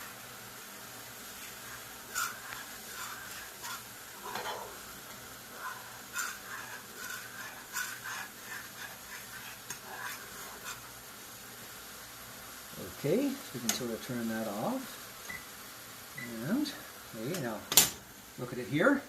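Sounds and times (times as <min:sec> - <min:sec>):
glaze bubbling: 0:00.0 - 0:11.6
faint sizzle: 0:00.0 - 0:19.0
utensil scraping a pot: 0:01.4 - 0:04.8, 0:05.5 - 0:10.9.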